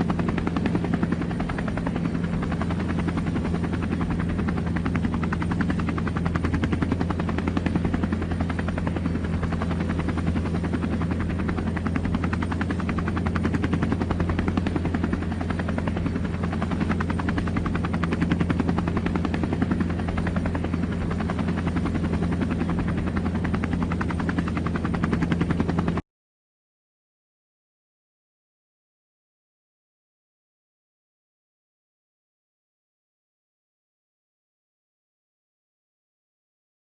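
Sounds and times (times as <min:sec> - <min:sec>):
helicopter engine drone: 0:00.0 - 0:26.0
helicopter rotor chop: 0:00.0 - 0:26.0.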